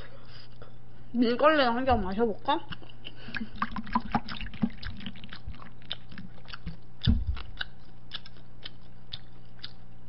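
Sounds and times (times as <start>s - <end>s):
person chewing with wet mouth clicks: 2.7s - 10.0s.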